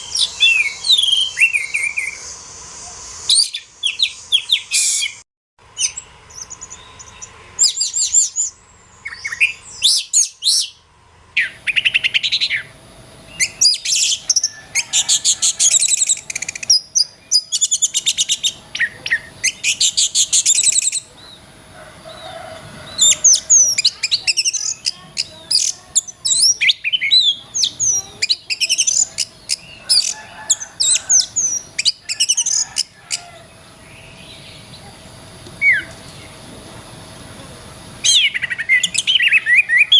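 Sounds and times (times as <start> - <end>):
bird singing chirps and whistles: 0.0 - 2.4, 3.2 - 5.2, 5.8 - 10.8, 11.4 - 12.7, 13.3 - 21.3, 22.9 - 30.2, 35.6 - 36.3, 38.0 - 39.9
faint steady hum: 0.0 - 39.9.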